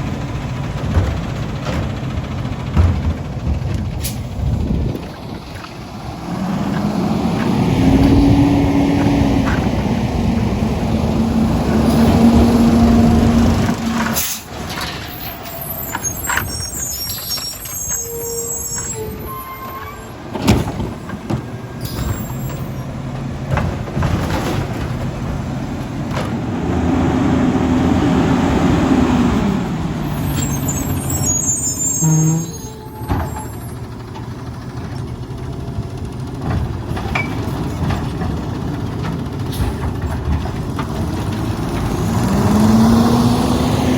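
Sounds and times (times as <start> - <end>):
truck diesel engine revving: 0.0 - 17.0, 20.2 - 32.7, 37.6 - 43.9
air brake release: 4.0 - 4.4, 14.1 - 14.5.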